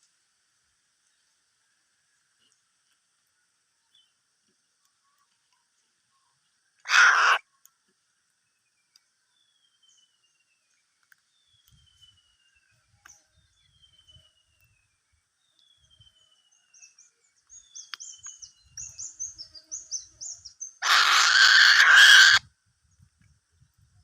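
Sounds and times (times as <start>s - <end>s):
loud harsh hissing: 20.8s - 22.4s.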